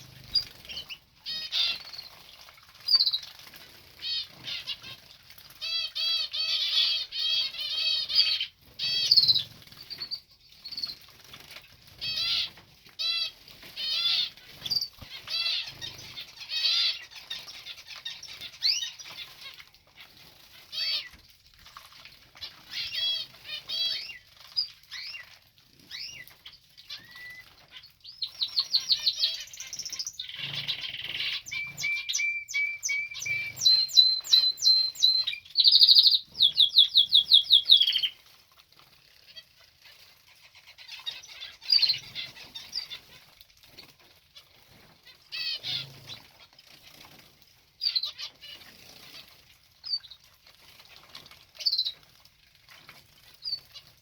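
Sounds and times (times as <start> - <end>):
wings fluttering: 0.0 - 5.9
small birds chirping and singing: 0.0 - 54.0.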